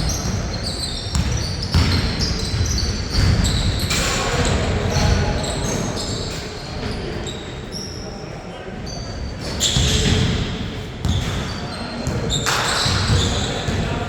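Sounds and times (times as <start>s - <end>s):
shoes squeaking on floor: 0.0s - 4.1s, 4.9s - 8.0s, 8.8s - 13.8s
basketball bouncing: 1.1s - 3.5s.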